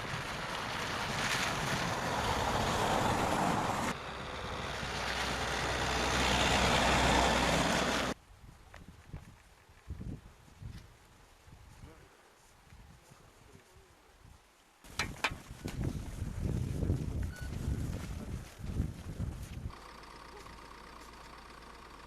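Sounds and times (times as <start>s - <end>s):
wind buffeting microphone: 8.4s - 12.0s, 14.2s - 19.7s.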